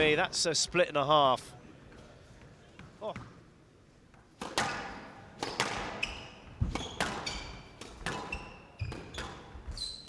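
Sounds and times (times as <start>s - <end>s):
squash ball hitting rackets and walls: 4.2s - 10.0s
shoes squeaking on court floor: 4.6s - 10.0s.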